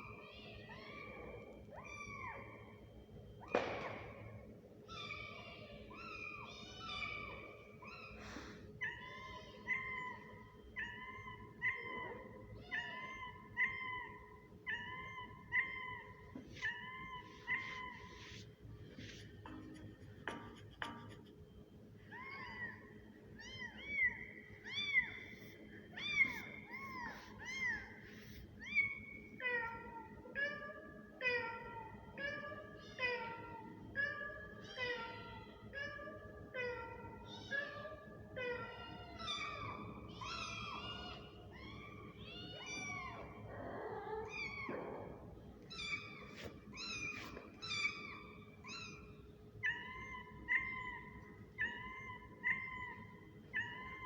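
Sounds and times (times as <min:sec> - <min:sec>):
kitten meowing: 0:39.2 - 0:54.0.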